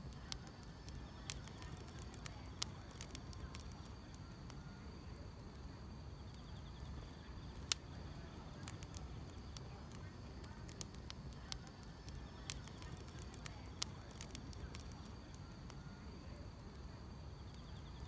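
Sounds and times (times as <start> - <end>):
grass insects chirring: 0.0 - 3.9, 6.4 - 15.2
wood fire crackling and popping: 0.0 - 18.0.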